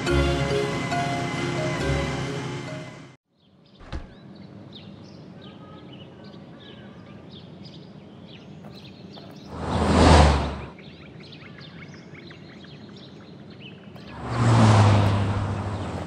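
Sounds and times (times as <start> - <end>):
music: 0.0 - 3.2
small birds chirping: 3.3 - 16.0.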